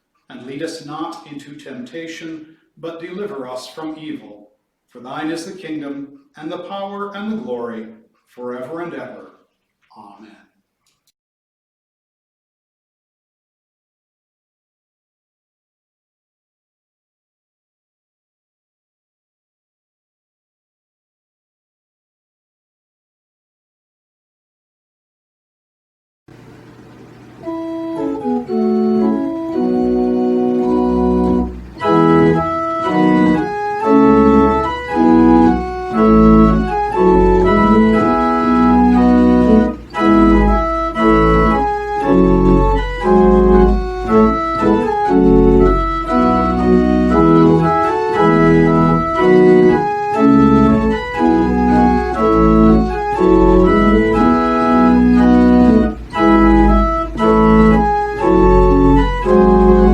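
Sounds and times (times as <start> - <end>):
organ playing sustained chords: 26.3 - 59.9.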